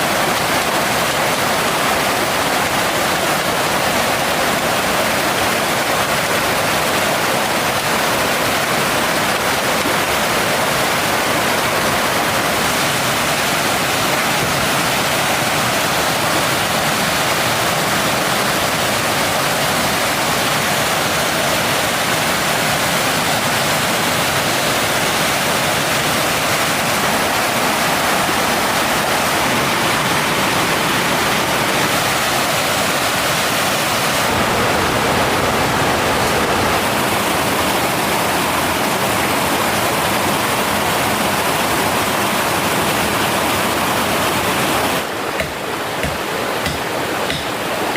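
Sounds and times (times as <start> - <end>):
mountain stream rushing: 0.0 - 47.9.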